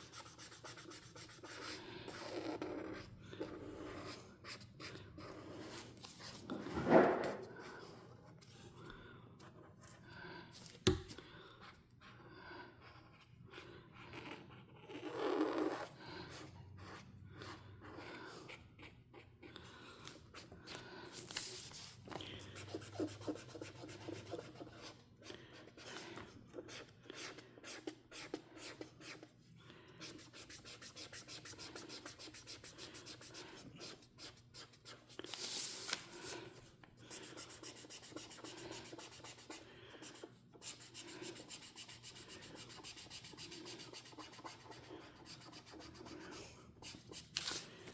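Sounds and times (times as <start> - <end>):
coloring tool scratching paper: 0.0 - 6.4, 22.5 - 25.0, 37.1 - 47.6.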